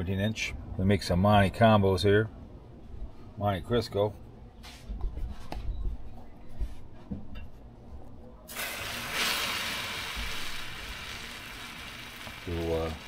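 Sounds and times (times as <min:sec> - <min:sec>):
food sizzling on a griddle: 0:08.5 - 0:13.0.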